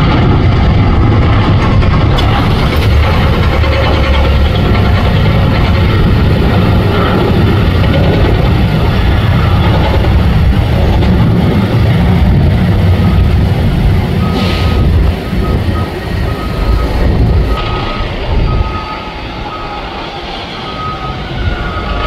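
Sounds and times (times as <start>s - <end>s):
heavy engines rumbling: 0.0s - 22.0s
vehicle reversing beeps: 12.9s - 13.5s, 14.1s - 22.0s.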